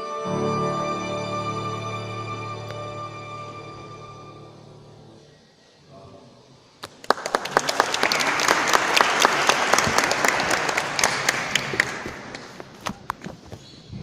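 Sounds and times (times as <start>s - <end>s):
audience applauding: 6.8s - 12.9s.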